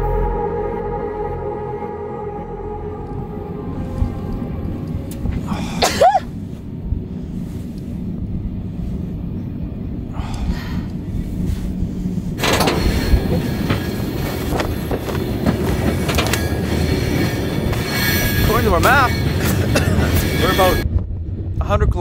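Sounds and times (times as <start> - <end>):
freight train rumbling and rattling: 2.6 - 22.0
wheel squeal: 12.4 - 20.8.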